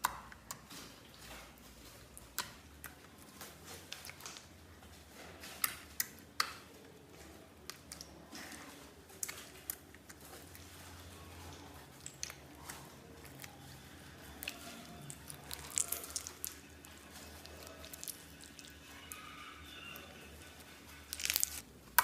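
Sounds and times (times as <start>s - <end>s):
slime squished by hand: 11.5s - 19.2s, 21.0s - 22.0s.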